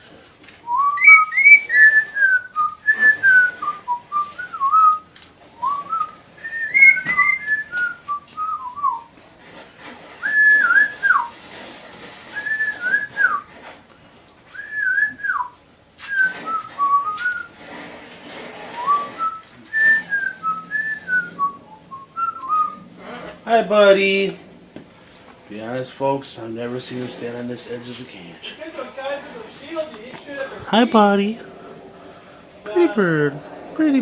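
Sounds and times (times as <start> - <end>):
person whistling melodic phrases: 0.7 - 9.1, 14.6 - 17.4, 18.8 - 22.8.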